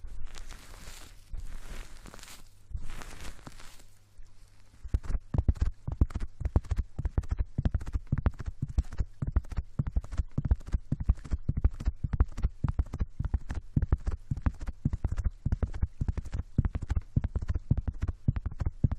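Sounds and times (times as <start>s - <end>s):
tapping and scratching on microphone: 0.0s - 18.9s.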